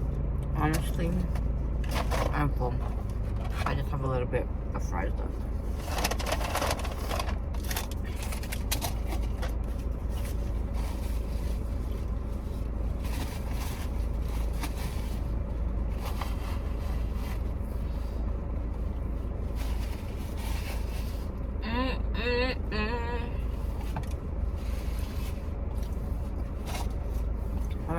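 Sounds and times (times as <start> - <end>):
low rumble: 0.0 - 27.9
paper packaging rustling: 5.7 - 18.1.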